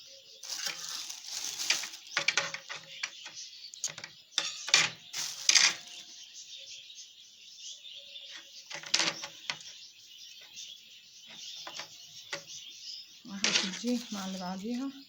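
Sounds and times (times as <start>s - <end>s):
small birds chirping: 0.0s - 15.0s
rustling and clatter of handling: 0.4s - 6.2s, 8.7s - 9.7s, 13.4s - 15.0s.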